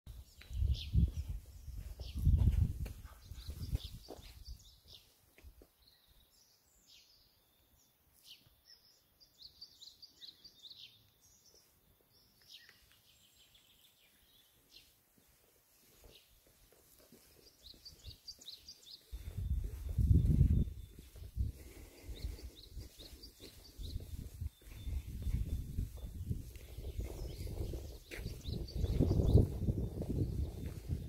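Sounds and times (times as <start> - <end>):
songbirds chirping: 0.1 - 31.0.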